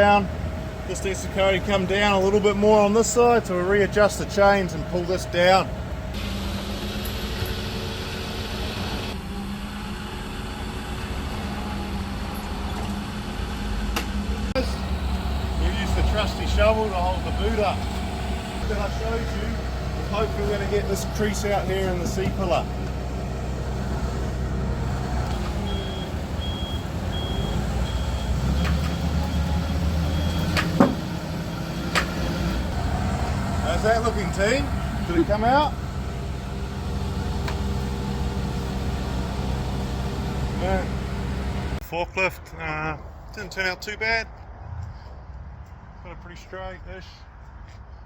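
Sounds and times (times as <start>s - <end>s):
forklift engine running: 0.0s - 13.6s, 14.5s - 41.8s
reversing alarm beeping: 14.6s - 22.6s, 24.9s - 31.7s.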